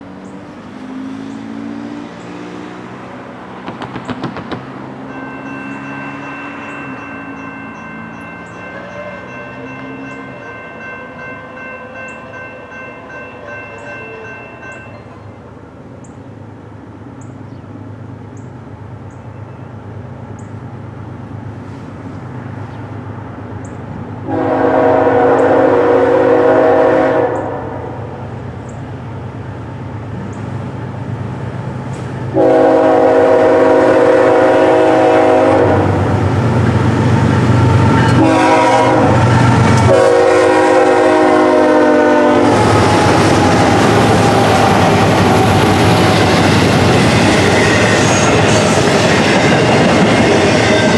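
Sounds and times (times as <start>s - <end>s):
diesel locomotive engine roar: 0.0s - 50.9s
train wheels rolling: 3.3s - 11.4s, 29.7s - 50.9s
train horn: 8.4s - 15.3s, 24.2s - 28.2s, 32.3s - 36.5s, 37.6s - 50.9s.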